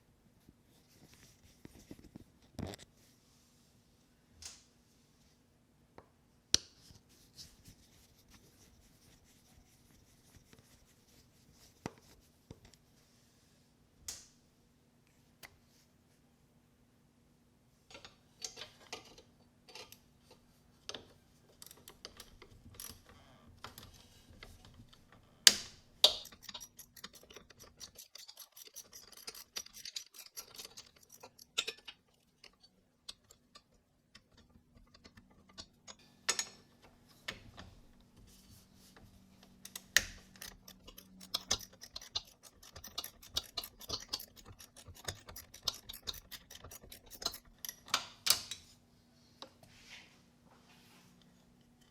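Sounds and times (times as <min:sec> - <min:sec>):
hand tools clicking and clattering: 0:25.5 - 0:36.7, 0:39.7 - 0:48.5.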